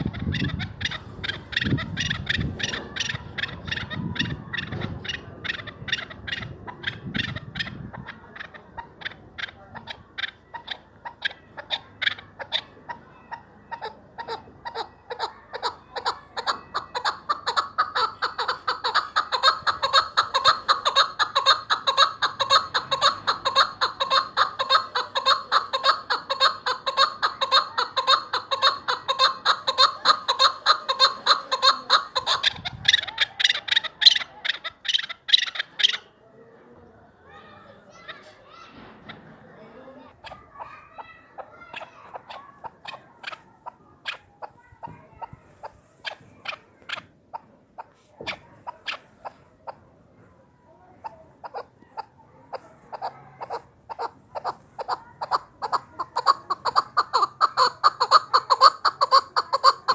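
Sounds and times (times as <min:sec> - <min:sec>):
partridge calling chuk notes: 0:00.0 - 0:36.1, 0:51.4 - 0:59.9.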